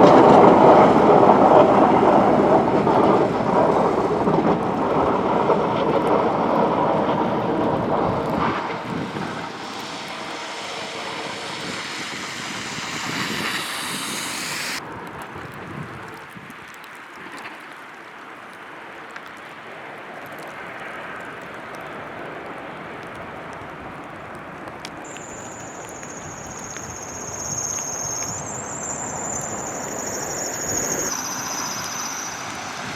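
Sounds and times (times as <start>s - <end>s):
vehicle engines: 0.0s - 14.8s, 25.1s - 32.9s
tyre hiss on wet road: 8.2s - 14.8s, 24.9s - 32.9s.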